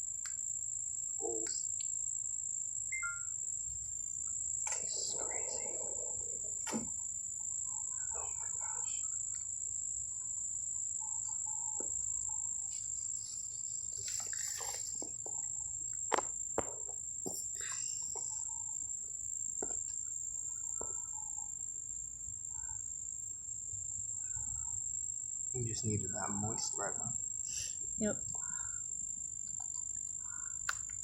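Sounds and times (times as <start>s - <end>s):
insects trilling: 0.0s - 31.0s
soft clicks and rustles: 12.7s - 15.4s.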